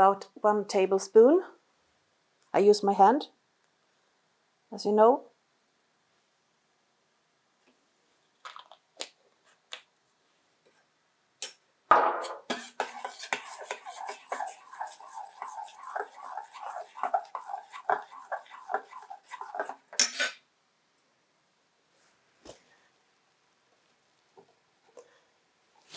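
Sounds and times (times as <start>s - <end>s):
spoon scraping pot: 12.2s - 20.4s
thick sauce being stirred: 12.4s - 20.4s.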